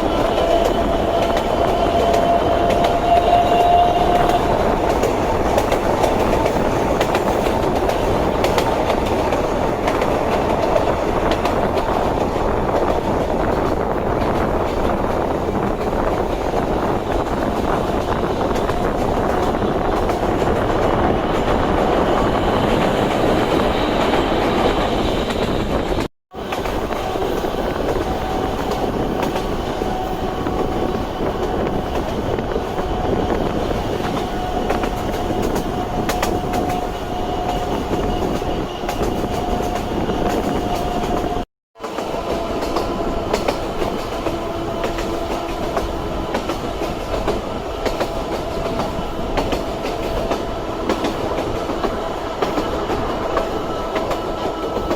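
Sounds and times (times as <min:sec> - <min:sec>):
train wheels clicking over rail joints: 0:00.0 - 0:54.9.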